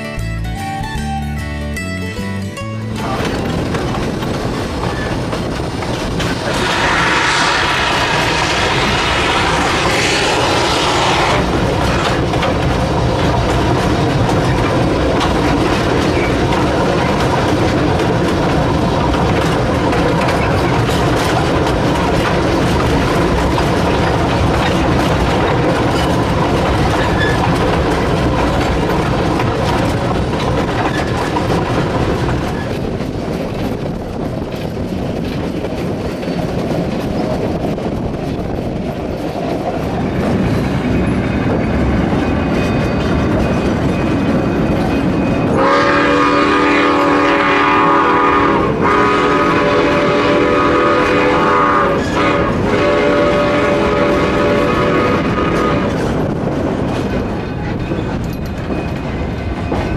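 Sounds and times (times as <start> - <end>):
train cars rattling on rails: 2.6 - 59.9
steam whistle blowing: 6.5 - 11.5, 45.6 - 56.0.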